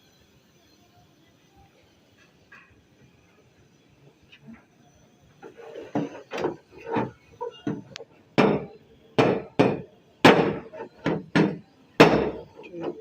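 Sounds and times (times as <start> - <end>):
hammer striking sheet metal: 8.4 - 12.4.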